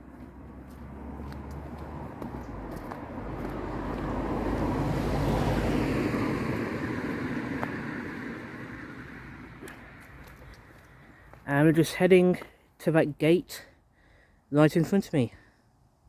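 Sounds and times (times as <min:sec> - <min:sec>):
road vehicle passing by: 0:00.0 - 0:12.0.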